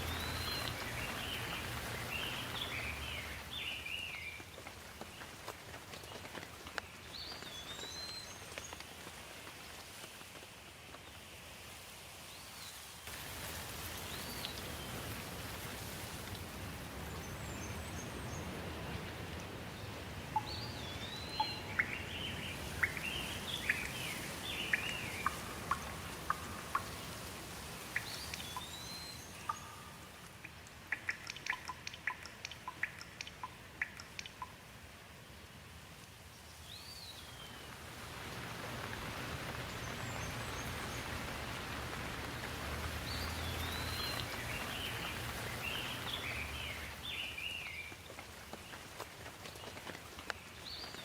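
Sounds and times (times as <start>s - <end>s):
steady rain hiss: 0.0s - 51.0s
quick patter of clicks: 29.5s - 34.6s.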